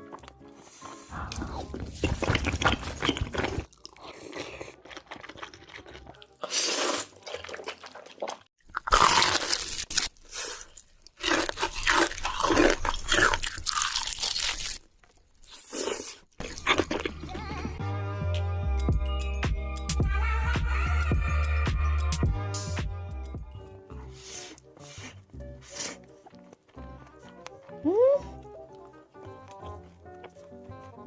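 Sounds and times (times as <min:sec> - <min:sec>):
crunching and chewing crisp food: 0:00.0 - 0:17.8, 0:25.6 - 0:31.0.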